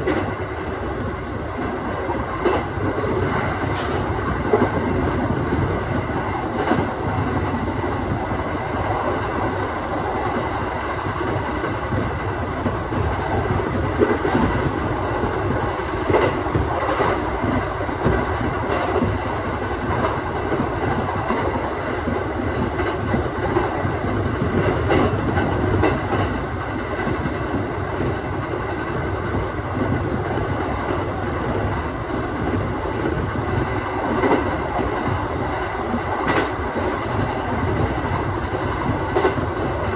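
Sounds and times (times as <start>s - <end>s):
train wheels rumbling on rail: 0.0s - 39.9s
wheels clicking over rail joints: 2.4s - 5.8s.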